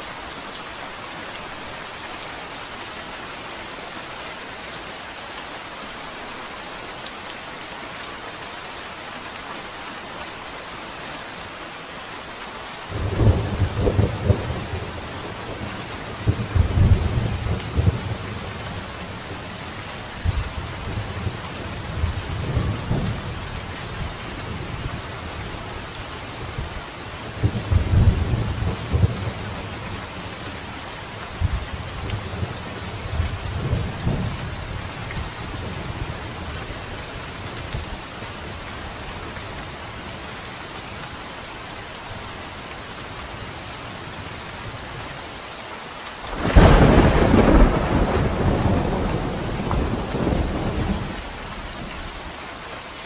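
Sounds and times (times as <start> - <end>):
steady rain falling: 0.0 - 53.0
rolling thunder: 46.3 - 51.4.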